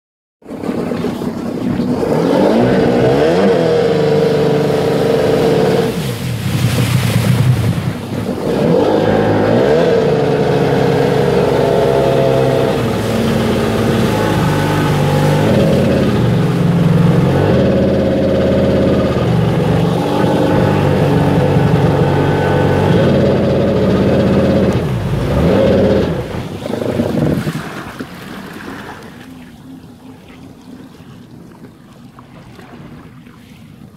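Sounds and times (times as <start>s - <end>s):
watercraft engine revving unevenly: 0.5s - 33.9s.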